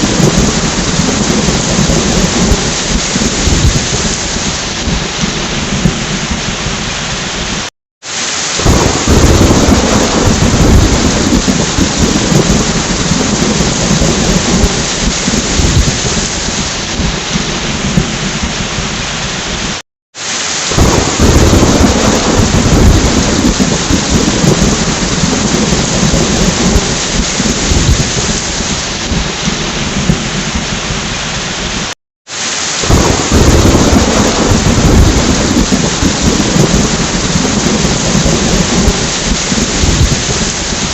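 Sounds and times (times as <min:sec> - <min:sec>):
thunder rumbling: 0:00.0 - 0:07.7, 0:08.6 - 0:19.8, 0:20.7 - 0:31.9, 0:32.8 - 0:40.9
heavy rain: 0:00.0 - 0:40.9.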